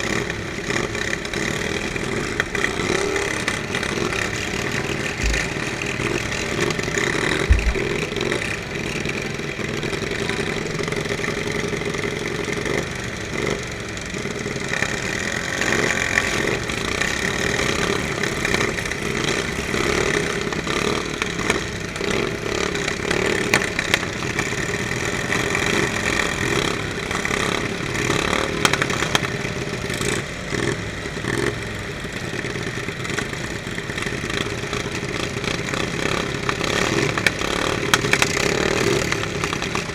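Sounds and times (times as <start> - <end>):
lawn mower engines running: 0.0 - 39.9
sharp knocks: 5.2 - 5.7, 7.4 - 8.1.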